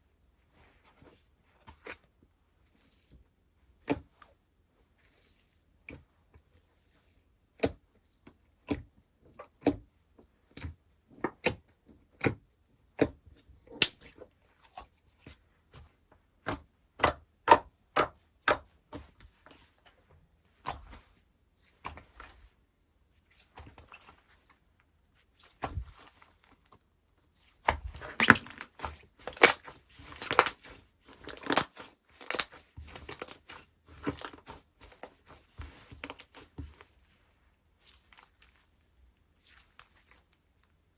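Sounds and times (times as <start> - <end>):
slime clicking and popping: 28.0 - 30.6, 31.3 - 33.4.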